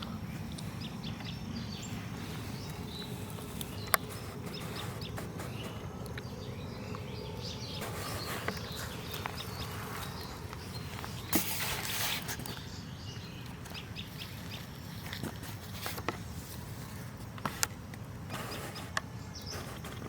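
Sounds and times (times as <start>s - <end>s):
steady low rumble: 0.0s - 11.9s
insects buzzing: 0.0s - 15.4s
small birds chirping: 0.0s - 20.0s.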